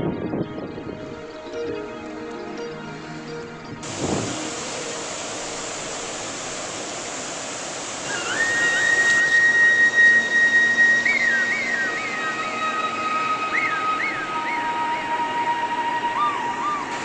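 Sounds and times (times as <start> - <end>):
steady rushing hiss: 1.0 - 17.0
high whistling tones: 3.8 - 17.0.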